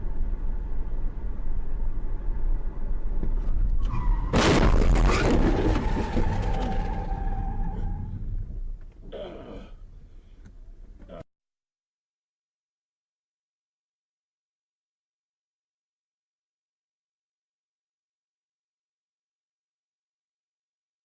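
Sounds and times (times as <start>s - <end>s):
vehicle driving noise: 0.0s - 11.2s
loud car crash: 3.8s - 8.4s.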